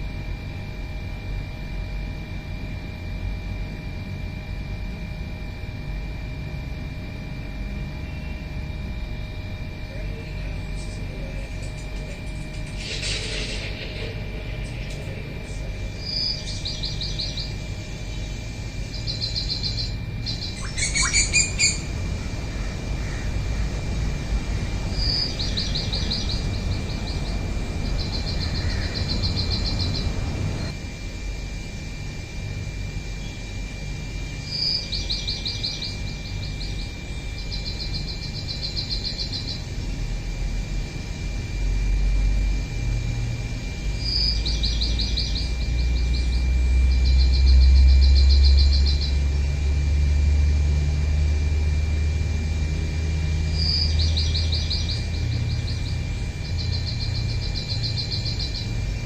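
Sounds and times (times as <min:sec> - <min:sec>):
bird song with trills: 0:14.8 - 0:21.9, 0:24.8 - 0:30.7, 0:34.3 - 0:39.8, 0:44.0 - 0:49.3, 0:53.4 - 0:59.0
loud clear bird call: 0:16.0 - 0:23.4, 0:24.9 - 0:30.2.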